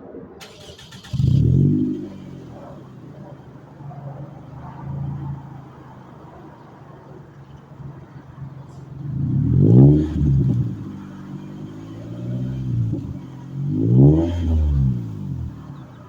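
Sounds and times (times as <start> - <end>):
car engine idling and revving: 0.4 - 16.0.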